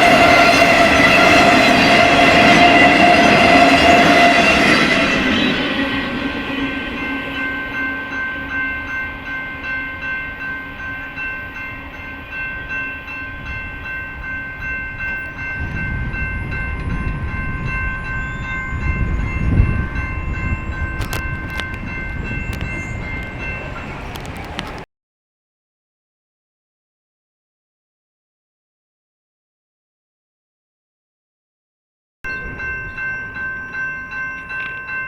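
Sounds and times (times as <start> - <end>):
train wheels clacking on rails: 0.0 - 9.7, 15.0 - 24.8
high ringing tone: 0.0 - 24.3, 32.3 - 35.0
low train rumble: 0.0 - 24.8, 32.3 - 35.0.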